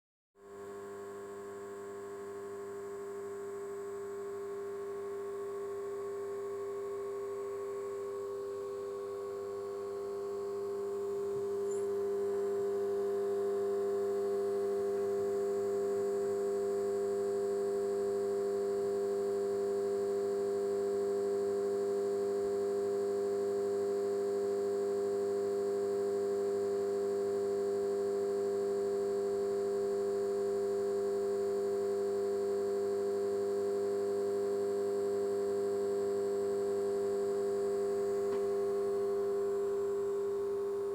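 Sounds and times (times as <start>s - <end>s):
faint high whine: 0.6s - 40.9s
voltage stabilizer humming: 5.2s - 16.0s.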